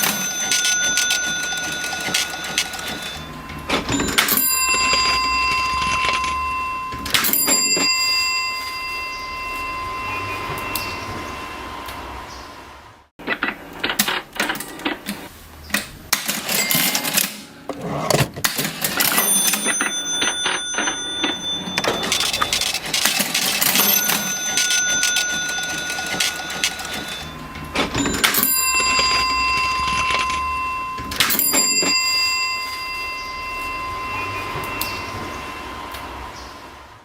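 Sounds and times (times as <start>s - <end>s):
cash register keys clacking: 0.0s - 8.5s, 16.1s - 33.2s
cash register bell ringing: 0.0s - 11.9s, 16.2s - 36.2s.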